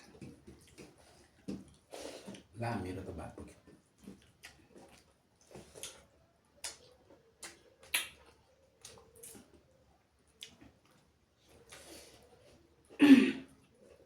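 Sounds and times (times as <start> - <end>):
person chewing: 3.7 - 9.6, 10.3 - 14.0
mouth clicks and smacks: 4.0 - 9.6.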